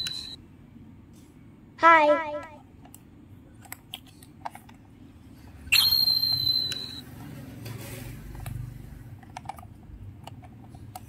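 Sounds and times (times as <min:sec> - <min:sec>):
high electronic tone: 0:05.8 - 0:07.0.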